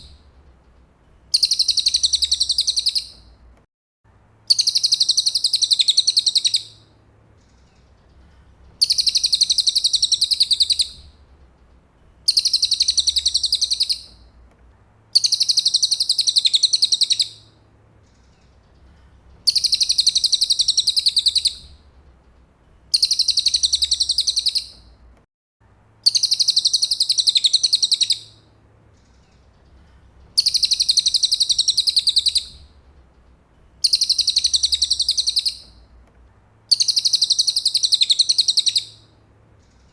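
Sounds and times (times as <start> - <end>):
bird trilling: 1.3 - 3.2, 4.5 - 6.8, 8.8 - 11.0, 12.3 - 14.2, 15.2 - 17.4, 19.5 - 21.7, 22.9 - 24.8, 26.0 - 28.4, 30.4 - 32.6, 33.8 - 35.8, 36.7 - 39.0.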